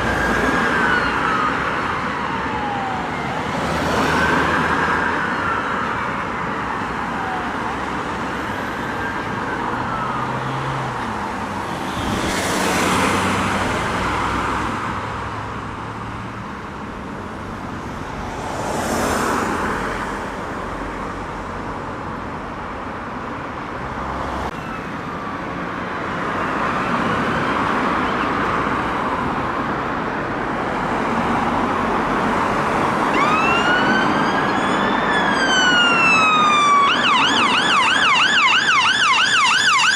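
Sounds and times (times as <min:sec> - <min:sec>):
emergency sirens wailing: 0:00.0 - 0:14.3, 0:26.1 - 0:39.9
city traffic noise: 0:00.0 - 0:39.9
vehicles rushing past: 0:00.0 - 0:39.9.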